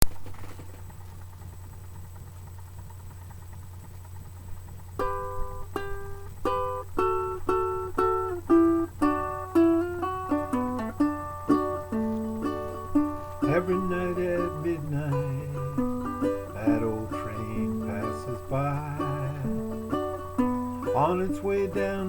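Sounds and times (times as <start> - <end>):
low steady hum: 0.0 - 22.0
acoustic guitar picking: 5.0 - 22.0.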